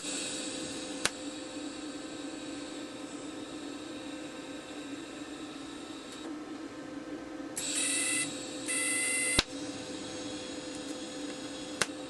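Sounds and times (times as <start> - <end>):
low hum: 0.0 - 12.0
welding arc buzzing: 7.6 - 12.0.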